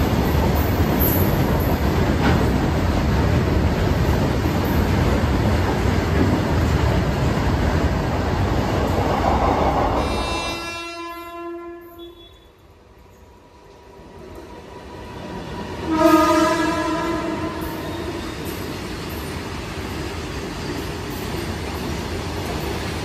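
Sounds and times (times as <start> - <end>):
freight train rumbling past: 0.0 - 11.9, 12.6 - 23.0
electric locomotive approaching: 0.0 - 23.0
train horn: 10.0 - 12.6, 15.8 - 18.3.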